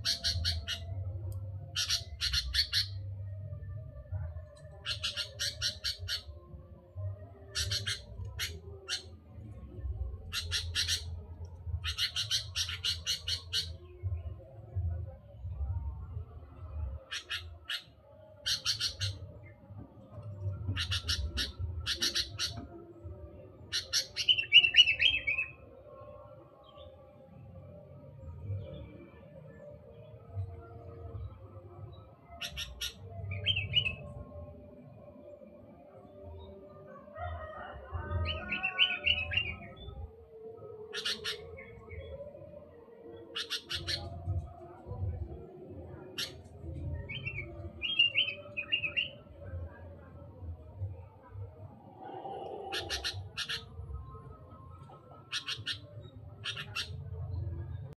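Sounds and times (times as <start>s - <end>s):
bird warbled phrase: 51.9s - 53.8s.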